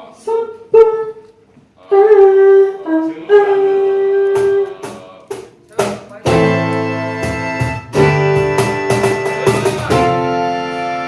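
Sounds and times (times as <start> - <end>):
wind instrument slow melody: 0.2 - 4.8, 6.4 - 11.0
short strums: 4.1 - 10.4.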